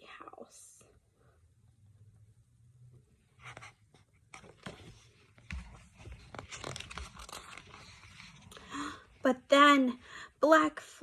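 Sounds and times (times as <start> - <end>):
paper rustling: 3.4 - 8.6.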